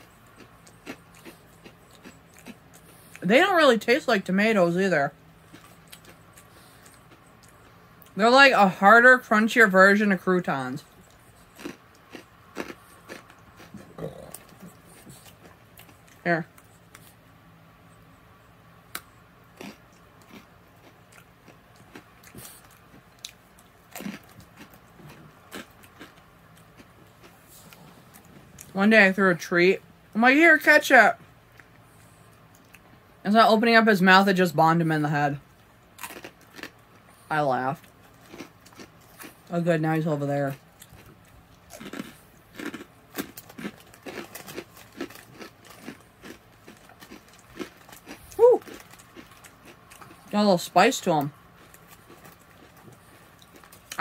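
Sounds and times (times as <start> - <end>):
crunchy snack being chewed: 0.0 - 3.2, 5.4 - 8.2, 10.7 - 17.2, 18.9 - 28.8, 35.5 - 39.5, 40.5 - 50.4, 51.5 - 54.0.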